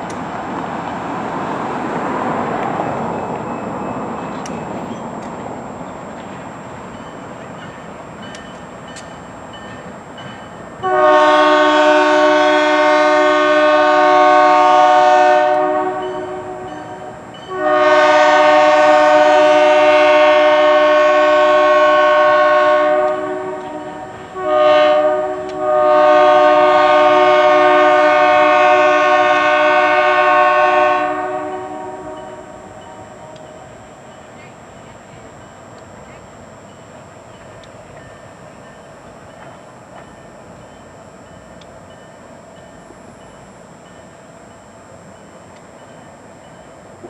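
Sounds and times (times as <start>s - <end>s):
locomotive horn blasts: 10.8s - 33.7s.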